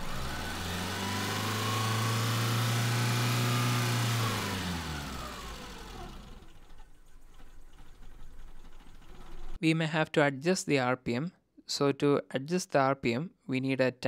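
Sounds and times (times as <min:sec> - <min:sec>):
car engine fast idle: 0:03.5 - 0:09.6.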